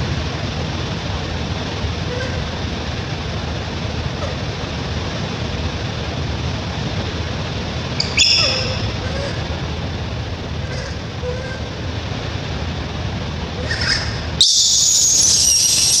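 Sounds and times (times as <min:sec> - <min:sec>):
low background rumble: 0:00.0 - 0:16.0
baby monkey squealing: 0:04.2 - 0:04.4, 0:08.0 - 0:09.8, 0:10.6 - 0:11.8, 0:13.6 - 0:16.0.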